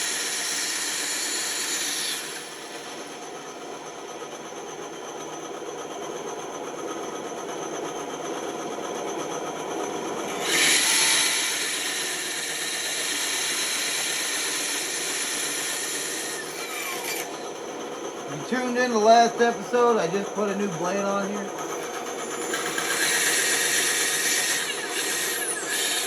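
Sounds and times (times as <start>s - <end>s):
woodworking power tool running: 0.0s - 26.0s
hissing as tool cuts wood: 10.4s - 17.4s, 22.2s - 26.0s.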